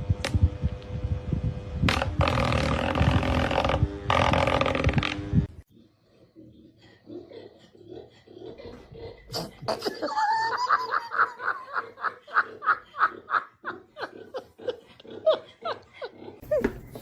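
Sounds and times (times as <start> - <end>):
person laughing rhythmically: 8.6 - 17.0.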